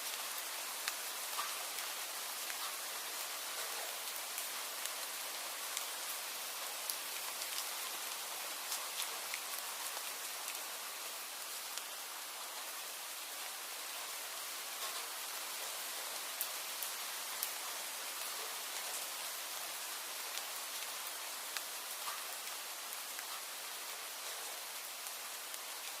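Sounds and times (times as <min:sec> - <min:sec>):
steady rain hiss: 0:00.0 - 0:26.0.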